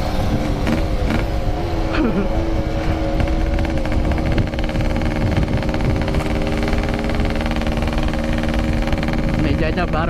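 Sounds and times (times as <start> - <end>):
two-stroke motorcycle engine running: 0.0 - 10.0
wind rumble on microphone: 0.0 - 10.0.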